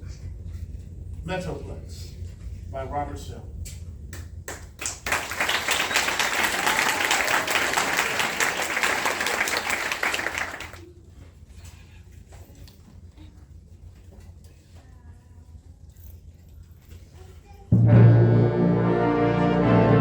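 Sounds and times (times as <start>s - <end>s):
audience applauding: 4.5s - 10.8s.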